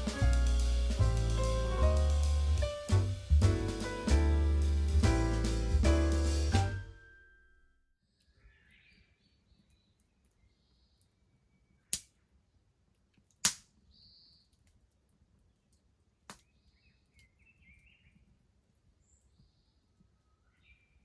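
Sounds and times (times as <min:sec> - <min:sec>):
bonfire popping: 0:00.0 - 0:06.8
small birds chirping: 0:08.1 - 0:12.4, 0:13.8 - 0:21.0.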